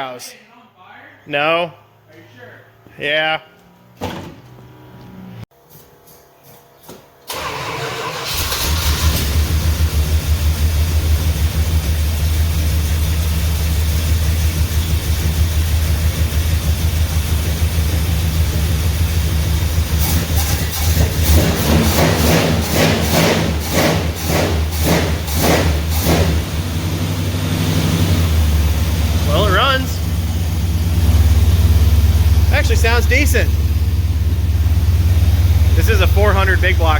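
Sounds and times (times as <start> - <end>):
truck engine starting and running: 7.3 - 36.9.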